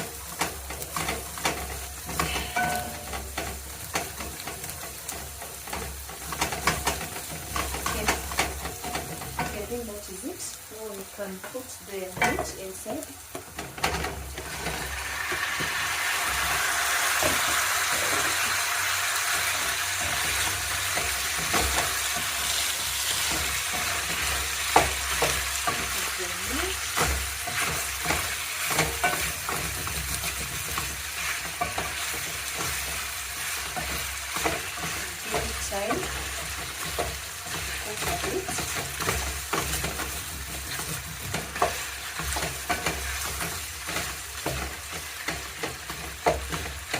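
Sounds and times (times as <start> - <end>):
chicken sizzling in a pot: 0.0 - 46.9
spoon knocking against pot: 2.2 - 3.5.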